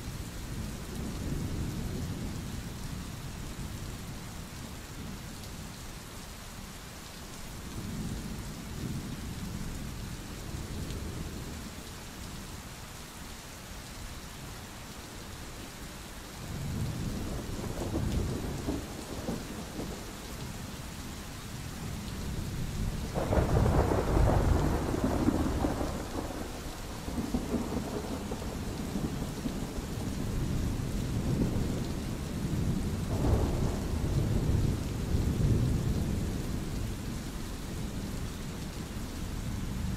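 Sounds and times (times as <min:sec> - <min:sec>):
steady rain: 0:00.0 - 0:39.9
thunder rumbling: 0:22.9 - 0:38.2.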